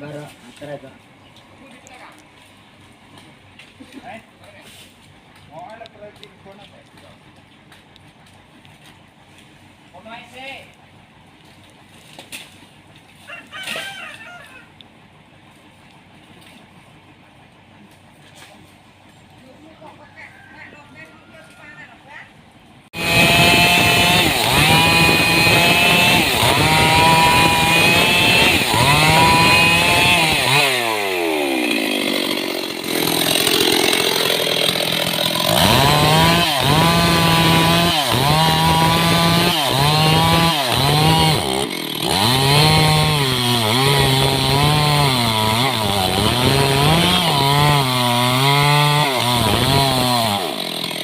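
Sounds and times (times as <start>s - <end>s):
chainsaw cutting wood: 22.9s - 51.0s.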